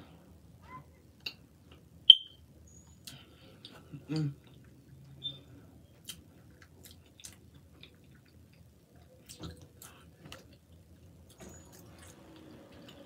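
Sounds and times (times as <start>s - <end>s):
mouth-closed chewing: 6.0s - 11.0s.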